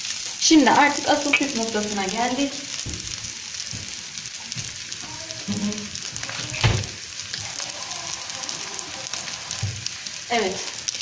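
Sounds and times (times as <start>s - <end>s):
chicken sizzling in a pan: 0.0s - 11.0s
loud knock: 2.8s - 3.2s.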